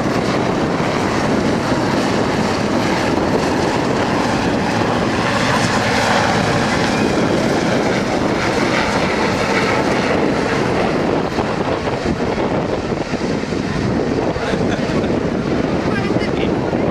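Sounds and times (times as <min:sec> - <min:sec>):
helicopter rotor and turbine: 0:00.0 - 0:16.9.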